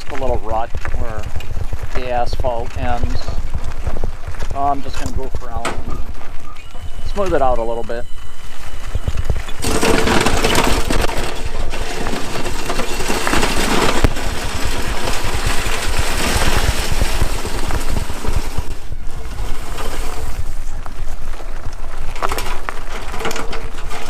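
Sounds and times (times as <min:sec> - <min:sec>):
plow scraping snow: 0:00.0 - 0:24.0
power wheelchair rumbling: 0:00.0 - 0:24.0.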